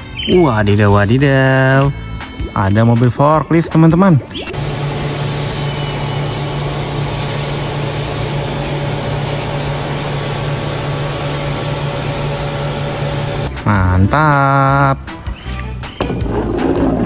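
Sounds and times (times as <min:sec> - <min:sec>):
forklift engine running: 0:04.5 - 0:13.6.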